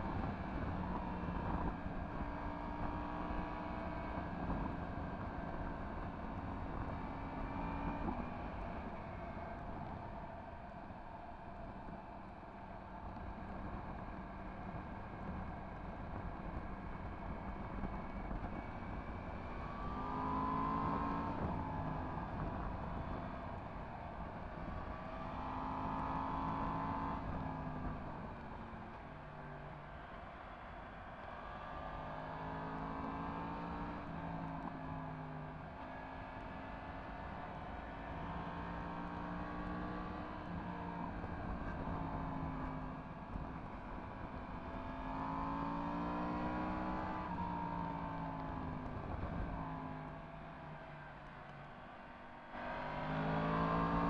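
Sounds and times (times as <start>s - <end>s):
motorcycle engine revving: 52.6s - 54.0s.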